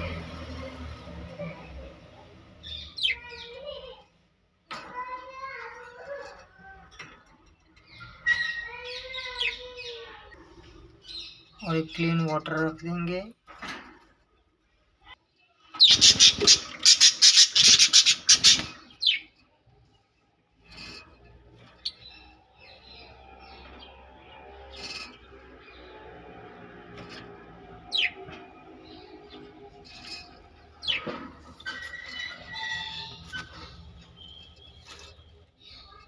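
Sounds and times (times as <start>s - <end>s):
parrots chirping: 1.3s - 3.9s, 7.8s - 11.8s, 15.7s - 19.4s, 20.6s - 36.0s.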